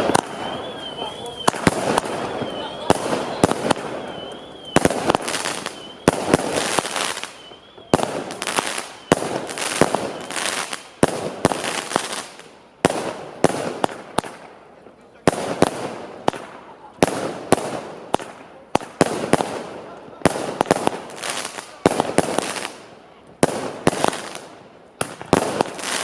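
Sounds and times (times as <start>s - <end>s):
fireworks bangs with crackle: 0.0s - 26.0s
high warbling whistle: 0.2s - 6.3s.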